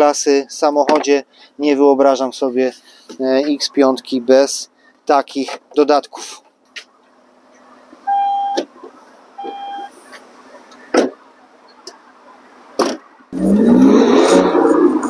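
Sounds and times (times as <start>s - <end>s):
short electronic beeps: 8.1s - 8.6s, 9.4s - 9.9s
diesel engine starting: 13.3s - 15.0s.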